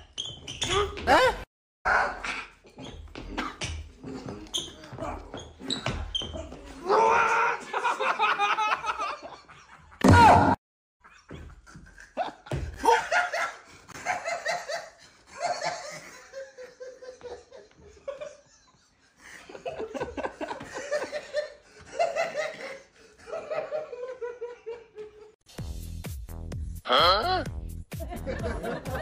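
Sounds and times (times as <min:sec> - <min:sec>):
people laughing hard: 0:07.0 - 0:10.0, 0:11.0 - 0:25.4, 0:28.0 - 0:29.0.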